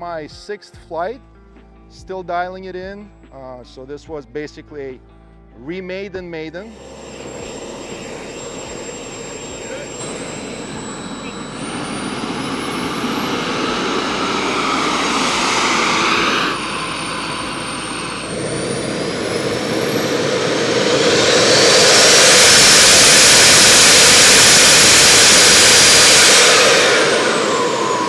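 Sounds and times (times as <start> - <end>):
jet turbine whine: 6.7 - 28.0
loud rushing jet noise: 6.7 - 28.0.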